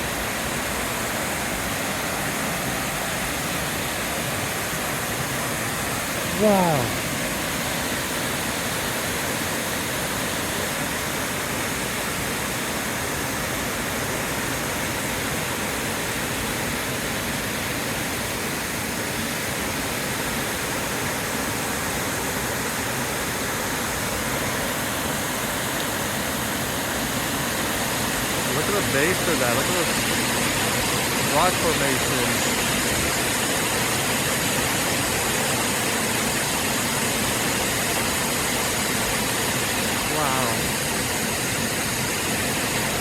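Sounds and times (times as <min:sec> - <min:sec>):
waterfall crashing: 0:00.0 - 0:43.0.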